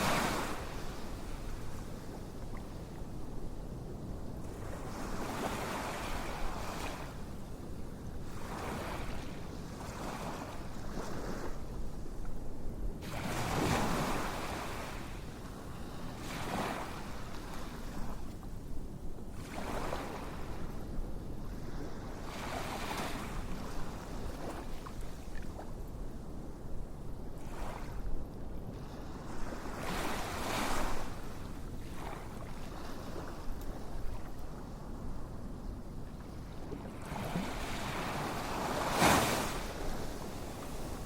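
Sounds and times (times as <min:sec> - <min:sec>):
ocean waves washing in: 0:36.9 - 0:41.0.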